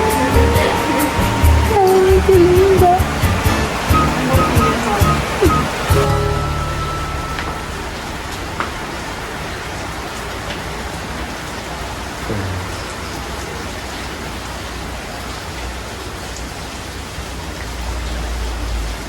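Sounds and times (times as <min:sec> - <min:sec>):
low rumble: 0:05.7 - 0:09.8.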